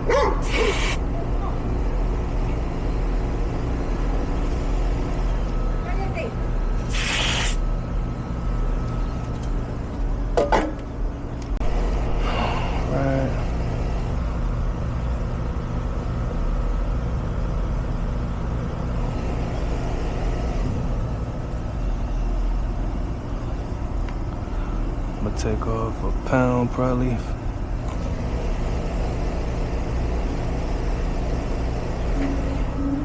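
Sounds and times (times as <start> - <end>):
air conditioner unit humming: 0.0 - 33.0.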